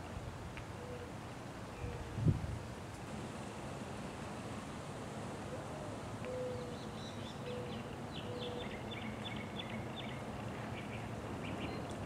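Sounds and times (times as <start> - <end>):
birds chirping: 6.2 - 12.0.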